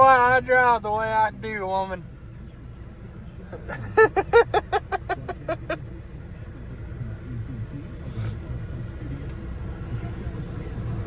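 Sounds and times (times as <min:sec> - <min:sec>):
car rumbling on road: 0:00.0 - 0:11.0
person laughing: 0:03.7 - 0:05.8.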